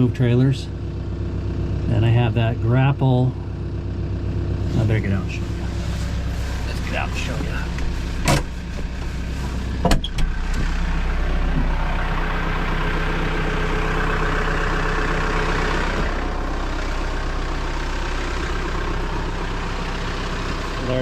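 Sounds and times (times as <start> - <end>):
vehicle engine idling: 0.0 - 21.0
sharp knocks and clunks: 7.8 - 10.8.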